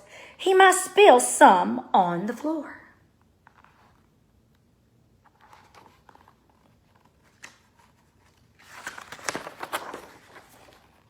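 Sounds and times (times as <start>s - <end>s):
paper pages rustling: 3.4s - 4.2s, 5.2s - 11.0s.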